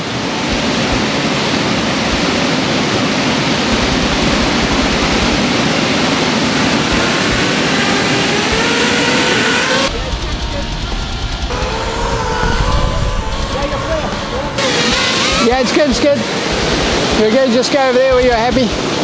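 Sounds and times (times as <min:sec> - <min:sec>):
waterfall rushing: 0:00.0 - 0:09.9, 0:13.2 - 0:19.0
quadcopter motors whining: 0:03.7 - 0:17.2.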